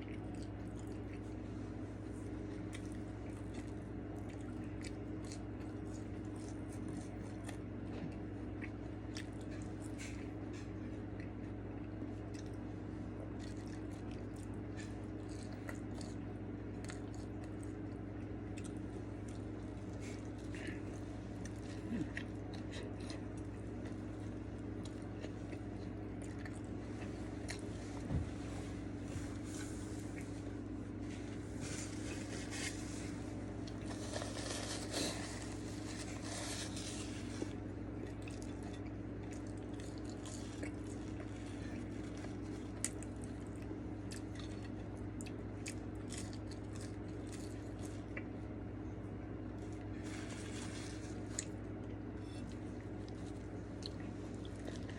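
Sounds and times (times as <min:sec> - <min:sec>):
food crunching: 0:00.0 - 0:28.0, 0:28.8 - 0:54.9
person chewing food: 0:00.0 - 0:54.9
steady low hum: 0:00.0 - 0:54.9.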